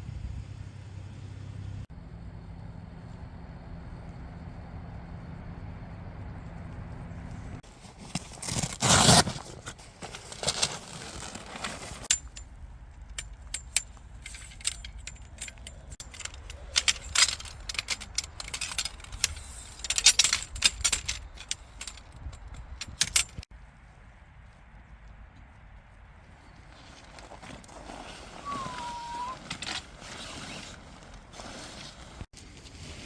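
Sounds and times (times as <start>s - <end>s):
small metal objects clinking: 12.0s - 23.5s.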